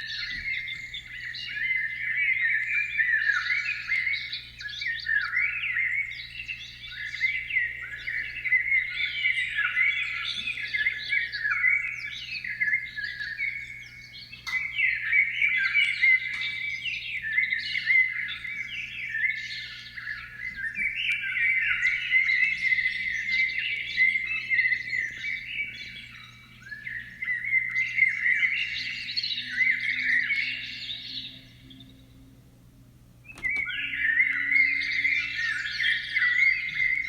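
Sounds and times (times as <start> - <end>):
songbird twittering and trilling: 0.0 - 32.4, 33.2 - 37.0
faint low hum: 30.9 - 35.7.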